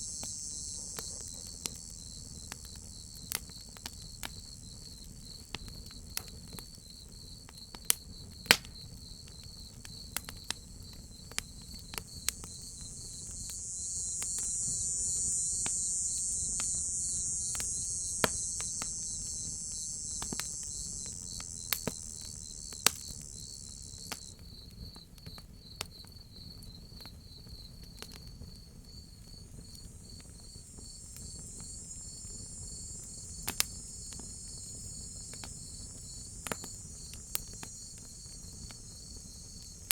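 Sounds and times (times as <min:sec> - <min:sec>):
cicada buzz: 0:00.0 - 0:06.2, 0:10.6 - 0:24.5, 0:28.5 - 0:39.9
crickets chirping: 0:00.0 - 0:39.9
wood fire crackling: 0:10.1 - 0:24.3, 0:29.4 - 0:39.9.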